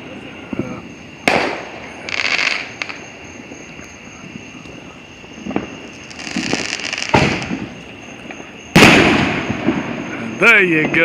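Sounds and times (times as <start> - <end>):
fireworks crackling: 0.0 - 11.0
firework bang: 0.5 - 3.1, 5.4 - 11.0.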